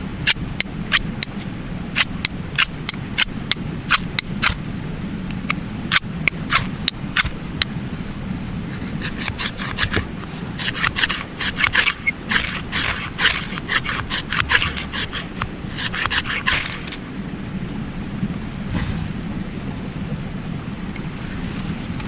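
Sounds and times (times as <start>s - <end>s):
stream water rushing: 0.0s - 22.0s
quick scraping strokes: 8.7s - 17.0s, 18.7s - 19.3s.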